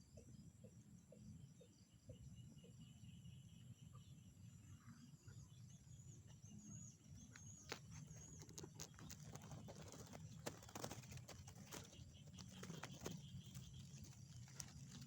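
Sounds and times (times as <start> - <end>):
frogs calling: 8.5 - 15.0.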